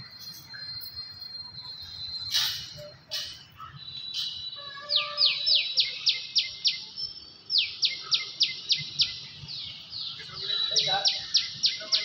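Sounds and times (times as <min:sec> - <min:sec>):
bird calling sharp high notes: 0:00.2 - 0:06.3.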